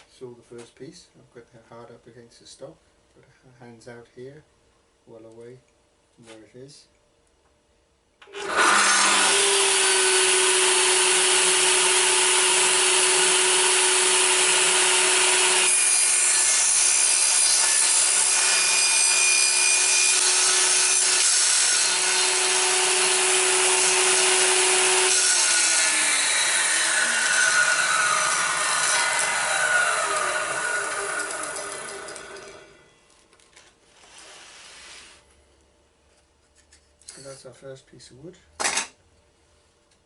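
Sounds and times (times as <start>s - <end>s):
table saw running: 8.2s - 32.8s
saw blade cutting wood: 8.3s - 32.8s
saw blade winding down whine: 21.2s - 32.8s.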